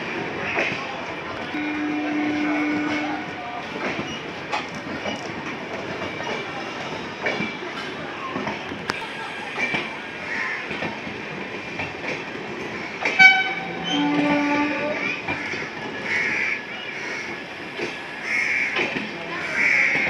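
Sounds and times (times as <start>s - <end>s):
train wheel clatter: 0.0s - 20.0s
train horn: 1.4s - 3.4s, 13.0s - 15.2s.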